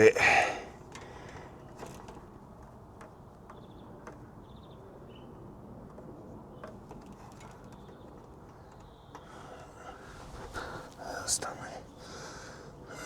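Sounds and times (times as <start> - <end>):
small fittings clicking and tapping: 5.9 - 9.6.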